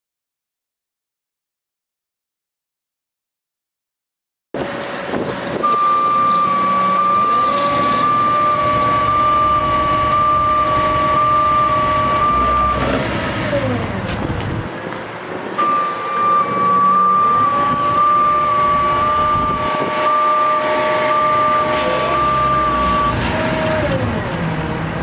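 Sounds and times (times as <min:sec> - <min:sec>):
truck engine running: 0:04.6 - 0:25.0
high-pitched electronic alarm tone: 0:05.6 - 0:13.8, 0:15.6 - 0:24.0.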